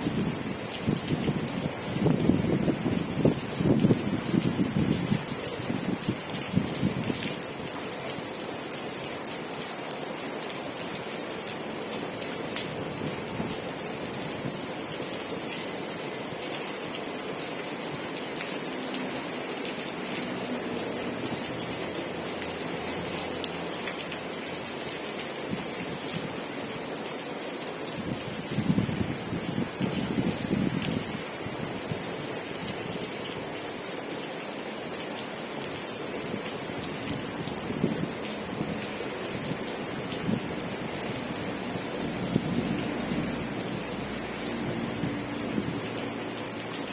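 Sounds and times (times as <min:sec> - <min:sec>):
wind rumbling on microphone: 0:00.0 - 0:07.5, 0:27.9 - 0:33.0, 0:36.2 - 0:46.9
steady rain falling: 0:00.0 - 0:46.9.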